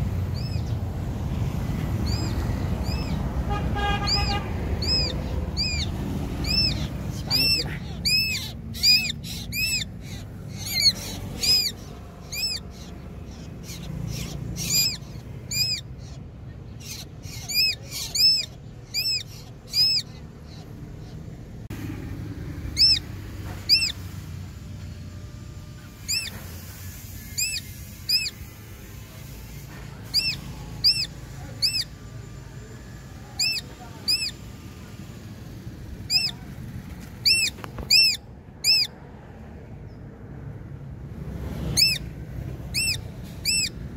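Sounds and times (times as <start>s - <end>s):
bird calling high clear notes: 3.8s - 12.9s, 22.7s - 24.0s, 30.1s - 32.2s, 36.0s - 36.4s, 37.2s - 38.9s, 42.7s - 43.8s.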